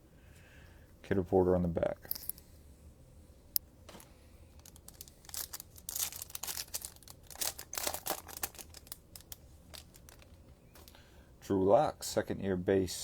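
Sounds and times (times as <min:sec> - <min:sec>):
foil wrapper crinkling: 0:03.9 - 0:11.0.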